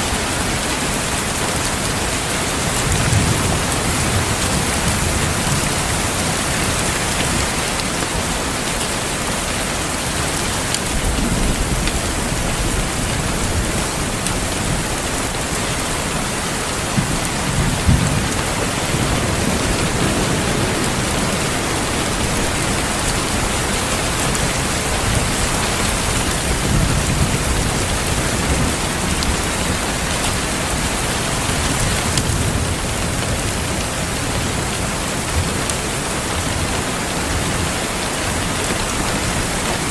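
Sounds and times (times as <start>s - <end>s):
heavy rain hissing: 0.0s - 39.9s
distant thunder: 10.8s - 33.1s
thunder cracks: 11.0s - 29.8s.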